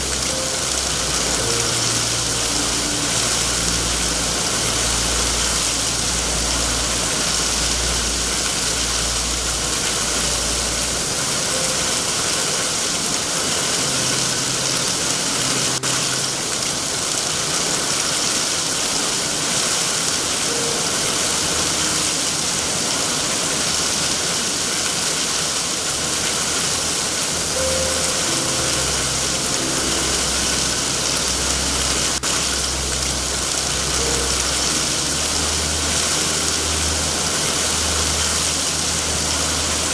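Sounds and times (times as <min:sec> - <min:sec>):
low rumble: 0:00.0 - 0:12.4, 0:27.5 - 0:39.9
heavy rain hiss: 0:00.0 - 0:39.9.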